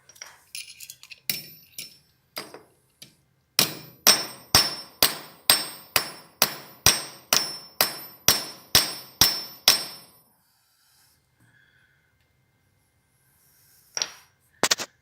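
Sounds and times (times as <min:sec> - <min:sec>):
hammer striking metal: 0:03.6 - 0:10.2.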